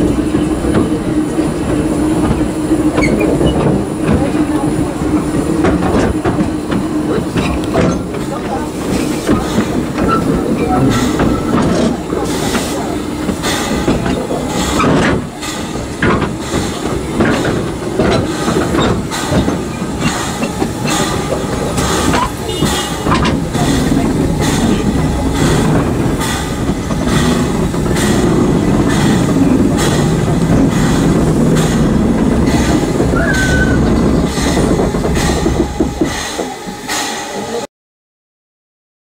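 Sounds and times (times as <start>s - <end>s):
train wheels clicking over rail joints: 0.0s - 37.6s
train wheel squeals: 2.9s - 3.7s, 8.9s - 13.0s, 32.4s - 37.6s.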